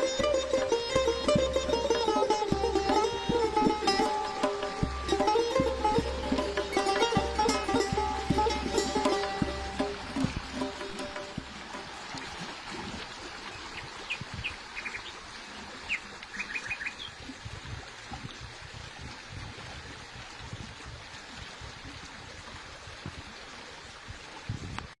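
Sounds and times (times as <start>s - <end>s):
low rumbles: 0.1s - 12.3s
songbird chirping: 13.4s - 15.2s, 15.8s - 17.2s.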